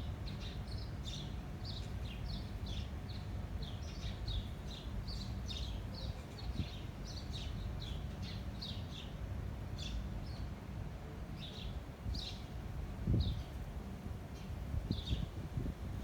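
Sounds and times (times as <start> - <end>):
wind rumble on microphone: 12.1 - 16.0.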